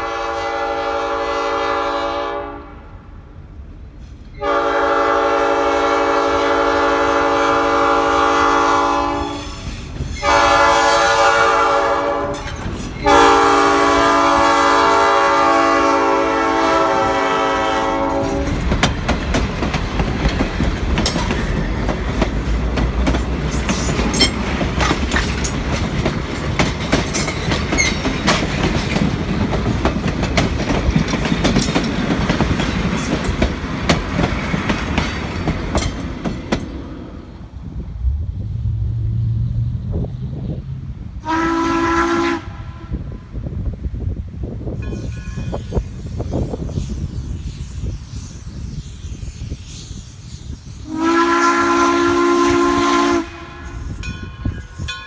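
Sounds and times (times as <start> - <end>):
locomotive air horn blasts: 0.0 - 3.0, 4.4 - 18.6, 41.2 - 43.2, 50.8 - 54.1
train wheels rumbling on rails: 2.9 - 55.0
clickety-clack over rail joints: 12.2 - 13.1, 18.1 - 36.8.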